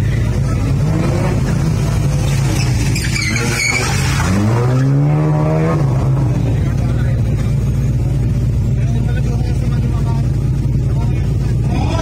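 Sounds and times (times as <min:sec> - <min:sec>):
race car engines droning: 0:00.0 - 0:12.0
high squeal: 0:02.4 - 0:05.0.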